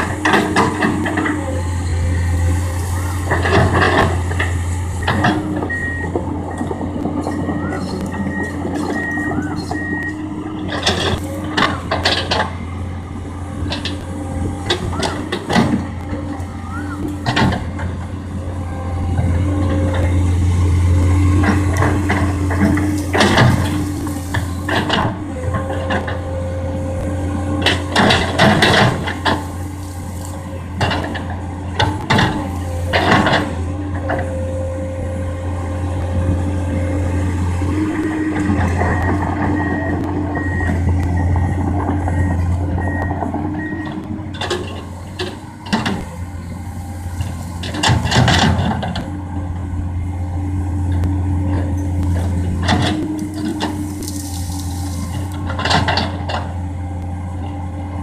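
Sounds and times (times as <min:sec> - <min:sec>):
excavator diesel engine running: 0:00.0 - 0:58.0
excavator bucket clattering: 0:21.4 - 0:26.2, 0:27.6 - 0:29.6, 0:47.2 - 0:49.2, 0:51.5 - 0:56.6.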